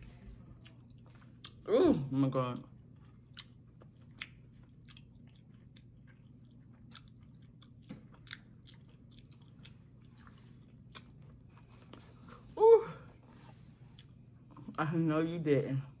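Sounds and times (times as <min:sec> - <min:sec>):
close-up chewing mouth clicks: 0:03.0 - 0:11.6.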